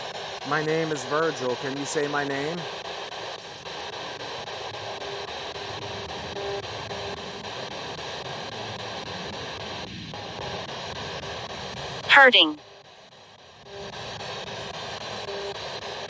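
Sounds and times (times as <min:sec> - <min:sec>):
radio static hiss: 0:00.5 - 0:02.7, 0:12.1 - 0:12.6.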